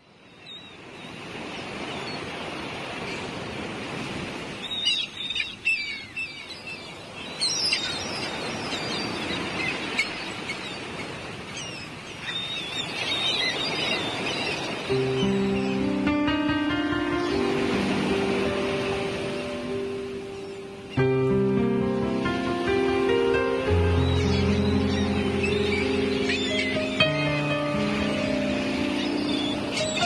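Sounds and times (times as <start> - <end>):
birds chirping and calling: 4.6 - 21.1, 22.6 - 30.0
music: 14.9 - 30.0.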